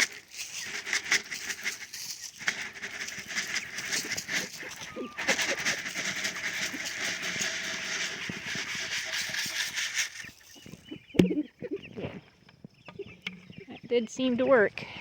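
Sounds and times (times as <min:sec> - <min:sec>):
rustling hiss: 0:00.0 - 0:11.1
chickens clucking: 0:00.0 - 0:14.5.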